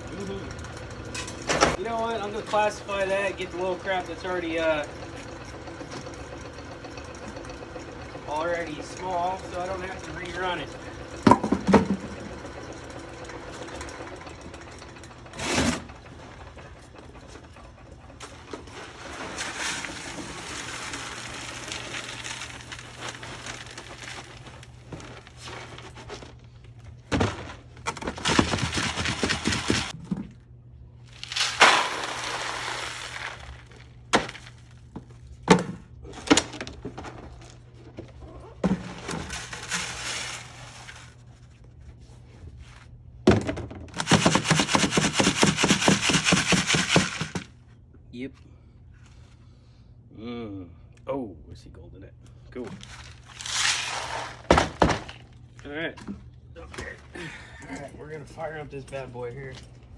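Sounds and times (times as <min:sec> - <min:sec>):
rock chips rattling in a screen: 0:18.7 - 0:25.5, 0:31.0 - 0:34.8, 0:52.8 - 0:54.5
steady low hum: 0:46.7 - 0:59.9.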